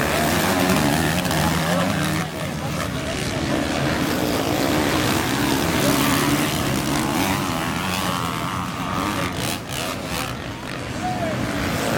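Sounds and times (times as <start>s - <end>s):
dirt bike engines revving: 0.0s - 11.9s.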